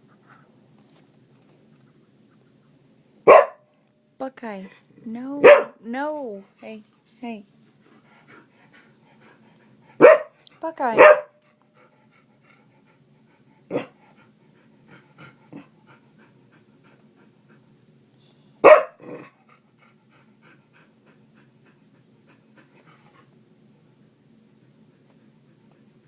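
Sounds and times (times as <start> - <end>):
small dog barking: 3.3 - 3.7, 5.4 - 5.8, 10.0 - 10.4, 11.0 - 11.4, 18.6 - 19.2.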